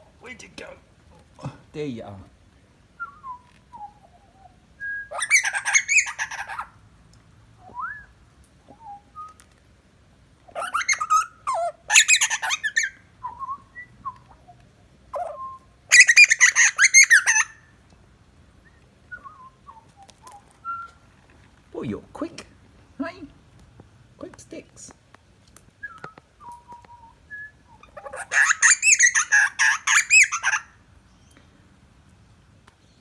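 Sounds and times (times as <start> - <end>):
thin whistled bird notes: 3.0 - 5.3, 8.7 - 9.5, 18.6 - 21.0, 25.8 - 28.0
bird squawky warbling: 5.1 - 6.7, 10.5 - 12.9, 15.2 - 17.6, 27.8 - 30.7.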